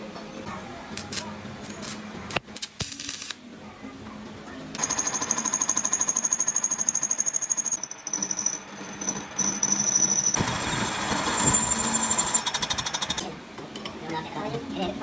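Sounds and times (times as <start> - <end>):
power tools rattling and whining on metal: 6.4 - 13.3.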